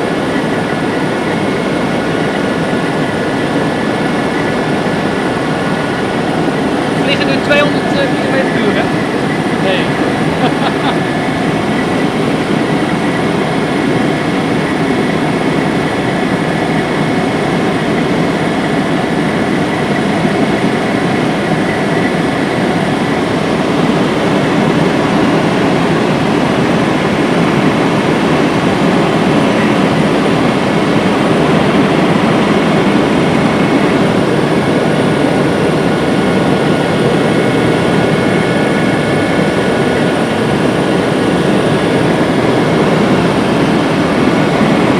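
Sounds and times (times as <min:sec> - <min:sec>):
helicopter engine and rotor rush: 0:00.0 - 0:44.9.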